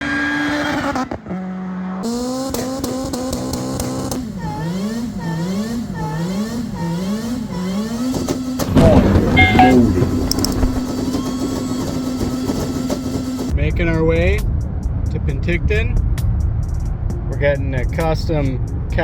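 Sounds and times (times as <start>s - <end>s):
car engine revving: 0.1s - 13.5s.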